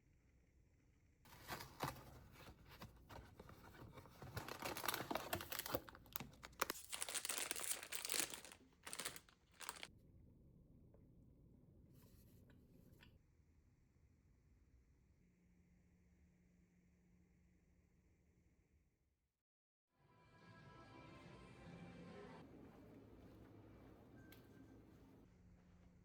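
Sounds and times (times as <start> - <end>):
packaging crinkling and rustling: 1.3 - 9.9.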